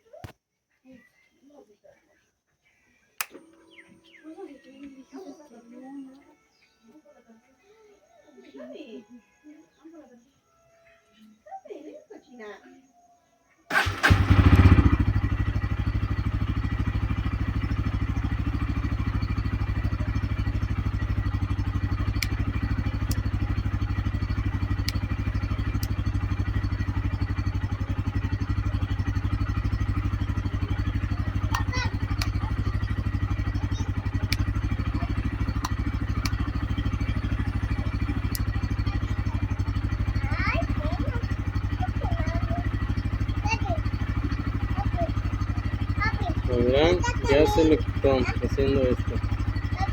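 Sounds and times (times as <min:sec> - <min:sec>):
motorcycle engine starting and idling: 0:03.2 - 0:06.2, 0:13.7 - 0:49.9.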